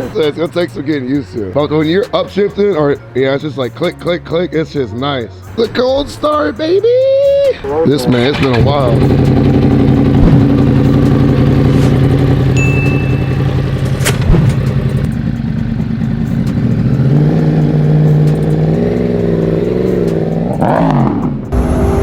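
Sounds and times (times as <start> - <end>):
motorcycle engine idling: 7.9 - 20.5
throttle blip: 12.6 - 14.5.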